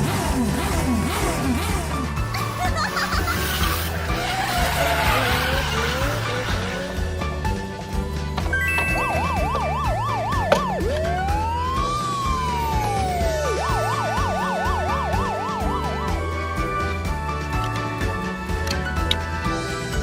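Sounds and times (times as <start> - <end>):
background music with steady beat: 0.0 - 20.0
siren yelping: 8.6 - 17.1.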